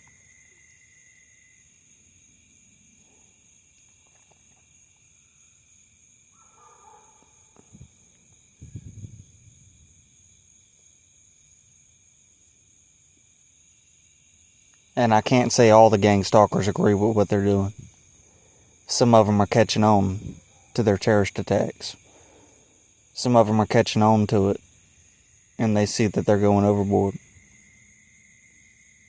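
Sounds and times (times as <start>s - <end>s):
crickets chirring: 0.0s - 29.0s
low bumps: 8.6s - 9.7s.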